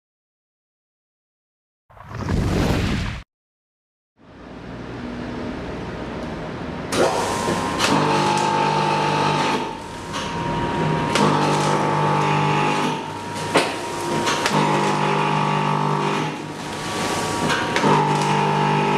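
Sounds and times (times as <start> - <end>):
packaging machine motor whine: 6.9 - 18.9.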